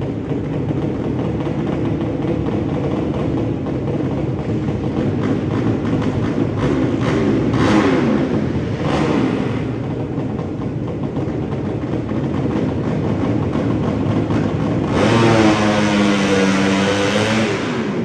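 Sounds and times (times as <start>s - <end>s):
motorcycle engine revving: 0.0s - 18.0s
motorcycle engines running: 0.0s - 18.0s.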